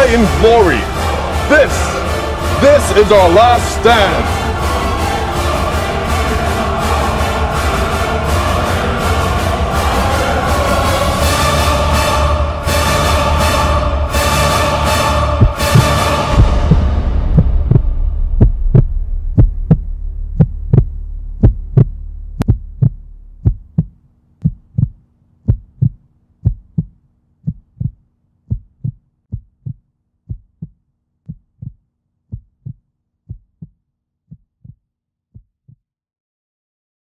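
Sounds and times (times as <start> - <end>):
low drone: 0.0 - 23.8
heartbeat thumps: 15.3 - 35.8.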